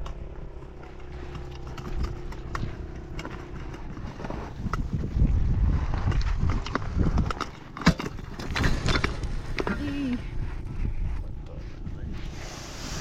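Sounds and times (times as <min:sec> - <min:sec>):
sharp clicks and knocks: 0:00.0 - 0:04.9.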